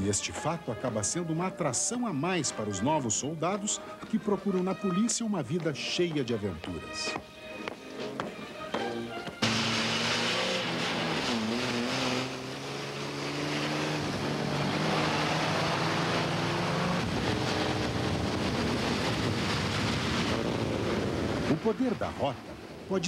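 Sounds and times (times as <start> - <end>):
wind: 0.0 - 23.0
tyres hissing on wet asphalt: 7.3 - 15.4
vehicle engine accelerating: 8.8 - 22.0.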